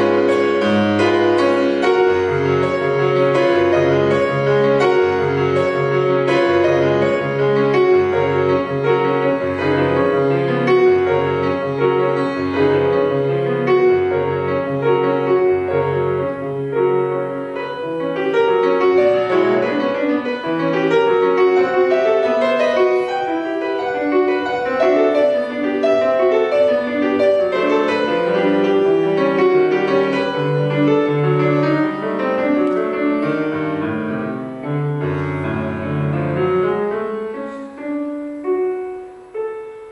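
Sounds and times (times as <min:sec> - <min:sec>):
solo classical piano: 0:00.0 - 0:39.9.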